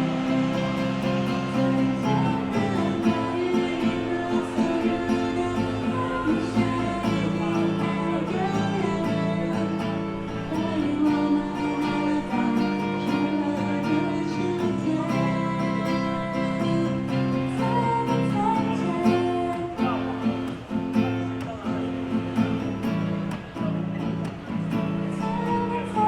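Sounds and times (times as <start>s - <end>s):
pop song accompaniment: 0.0s - 21.7s, 24.0s - 26.0s
strummed acoustic guitar: 0.0s - 26.0s.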